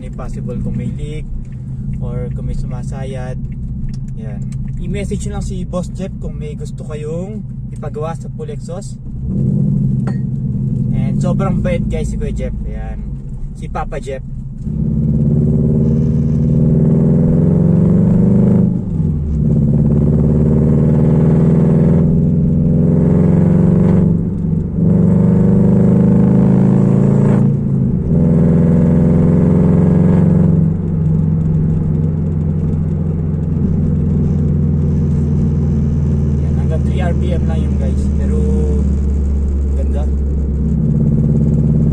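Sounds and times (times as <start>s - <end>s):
car engine revving hard: 14.6s - 41.9s.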